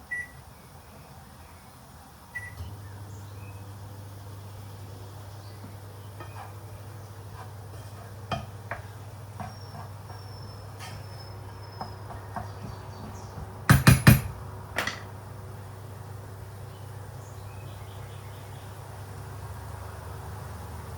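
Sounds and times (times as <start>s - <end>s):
kitchenware clicks and knocks: 11.8s - 15.1s
loud knocks: 11.8s - 15.1s.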